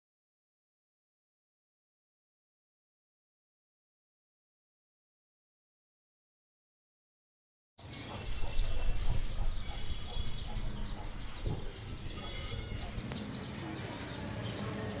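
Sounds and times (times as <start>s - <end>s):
many birds chirping: 7.8s - 15.0s.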